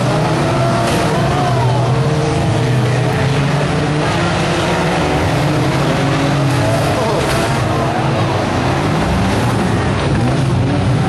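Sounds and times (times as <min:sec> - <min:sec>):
racing car engines revving: 0:00.0 - 0:11.0.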